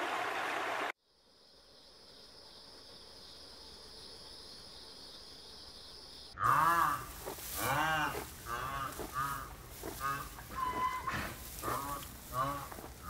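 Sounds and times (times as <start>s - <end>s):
short animal calls: 6.4s - 13.0s.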